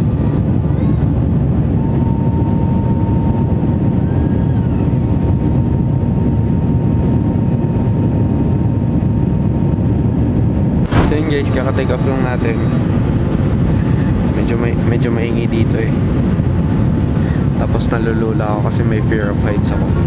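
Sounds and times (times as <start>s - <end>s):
airliner engines rumbling: 0.0s - 20.0s
thin steady whine: 10.8s - 20.0s.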